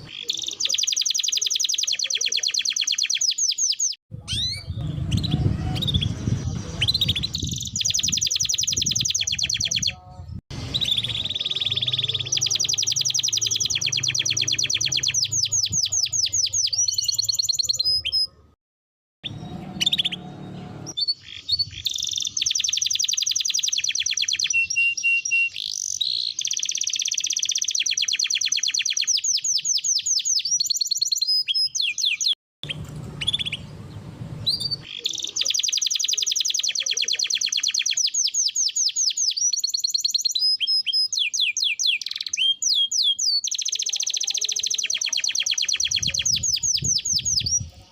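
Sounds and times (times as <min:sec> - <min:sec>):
canary singing trills: 0:00.0 - 0:18.6, 0:19.2 - 0:47.9.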